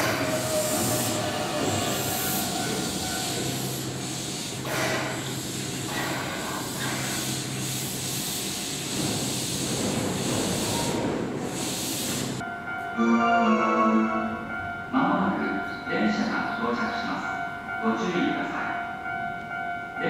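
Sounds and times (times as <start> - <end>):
hiss of air: 0.0 - 12.4
train rail and running noise: 0.0 - 12.9.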